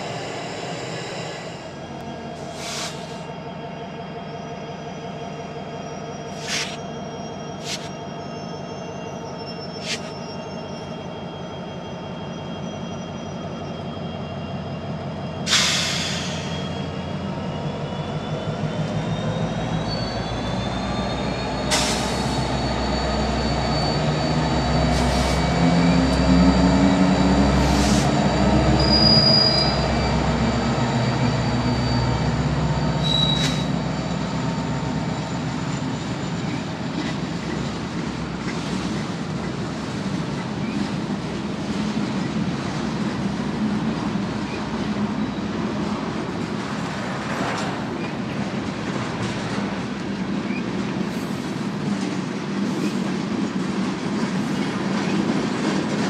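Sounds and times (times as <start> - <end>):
diesel locomotives rumbling past: 0.0 - 56.0
high-pitched wheel squeal: 5.5 - 14.8, 15.6 - 37.7.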